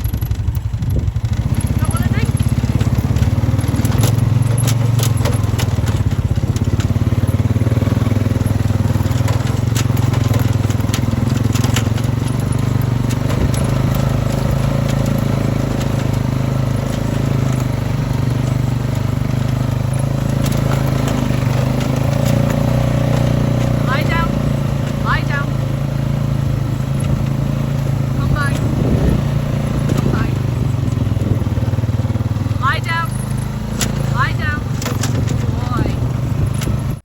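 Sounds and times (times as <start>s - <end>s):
vehicle engine running: 0.0s - 37.0s
crunching and crackling clicks: 2.5s - 23.8s.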